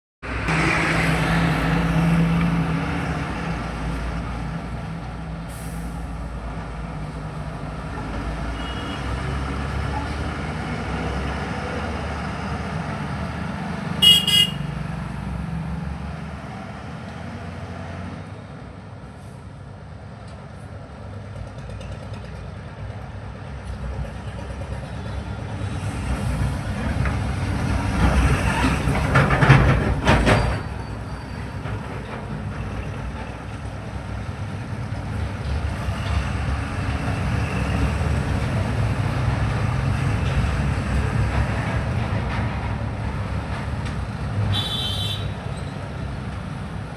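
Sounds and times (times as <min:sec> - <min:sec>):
traffic rumble: 0:00.2 - 0:46.9
heavy vehicle passing: 0:00.3 - 0:18.2.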